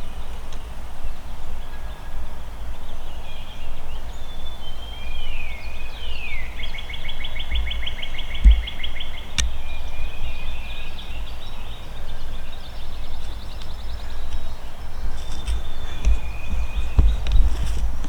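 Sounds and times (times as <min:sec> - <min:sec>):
songbirds singing: 0:00.0 - 0:18.0
low microphone rumble: 0:06.0 - 0:18.0
sharp click: 0:08.4 - 0:09.6.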